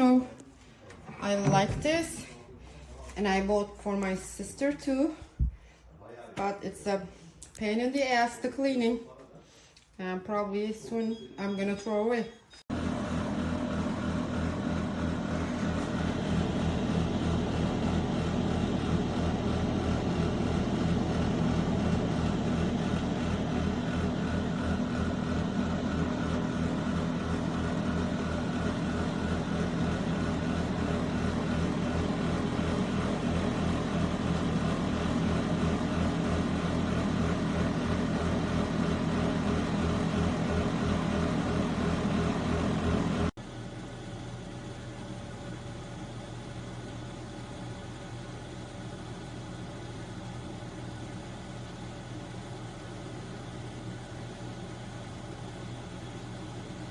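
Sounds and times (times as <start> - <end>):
air fryer fan motor humming: 12.7 - 56.9.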